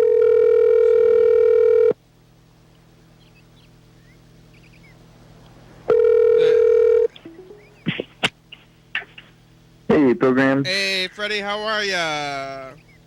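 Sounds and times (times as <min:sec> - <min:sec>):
telephone ringing: 0:00.0 - 0:02.0, 0:05.9 - 0:07.6.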